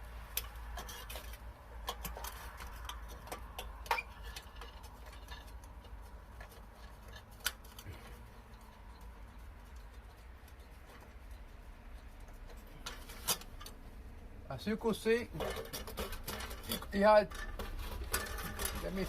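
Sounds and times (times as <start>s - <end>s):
small clicks and ticks: 0.3s - 14.3s.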